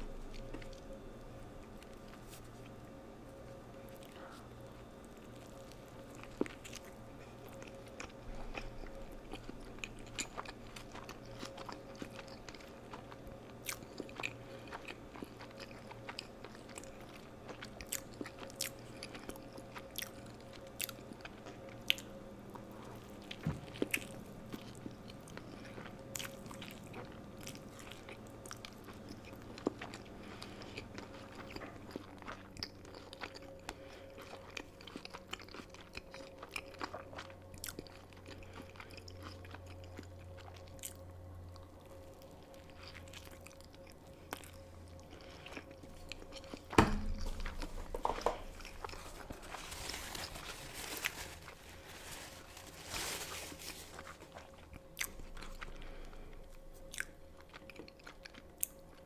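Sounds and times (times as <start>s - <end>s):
chewing and crunching food: 0.0s - 59.0s
faint steady hum: 0.0s - 59.0s.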